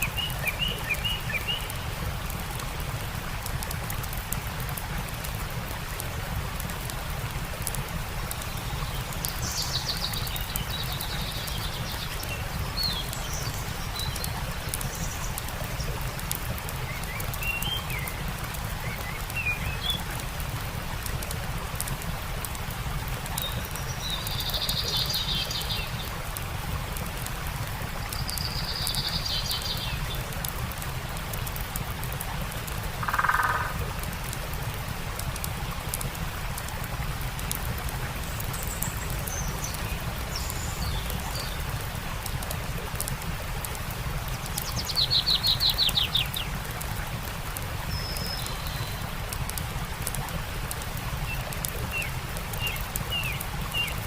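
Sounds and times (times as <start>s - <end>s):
songbirds calling: 0.0s - 1.9s, 8.3s - 20.1s, 23.3s - 26.3s, 27.8s - 30.4s, 33.0s - 33.9s, 38.1s - 41.9s, 44.3s - 46.6s, 47.9s - 49.1s, 51.2s - 54.0s
campfire crackling: 0.0s - 54.0s
flowing stream: 0.0s - 54.0s.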